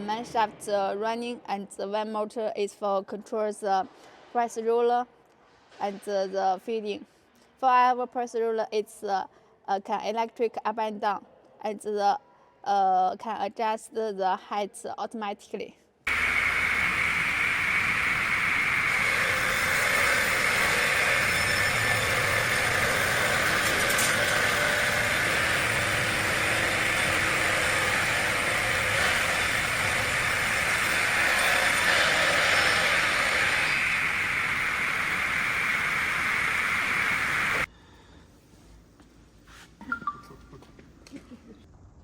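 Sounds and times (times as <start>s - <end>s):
multi-blade saw whining: 16.1s - 37.7s.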